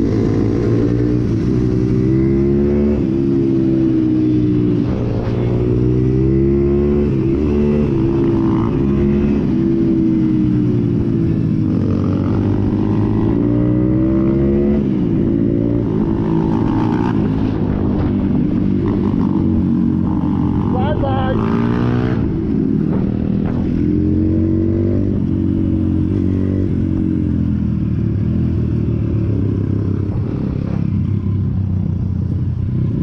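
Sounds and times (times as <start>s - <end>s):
pit bike engine revving: 11.7s - 27.4s.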